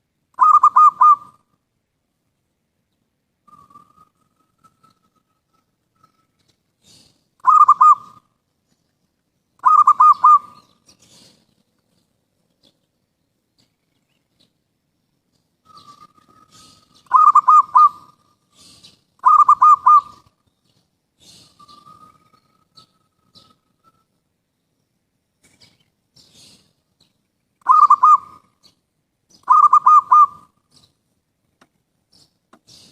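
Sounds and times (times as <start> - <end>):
dove cooing: 0.4 - 1.4, 6.8 - 8.3, 9.6 - 11.3, 15.7 - 20.3, 27.6 - 28.6, 29.4 - 30.6.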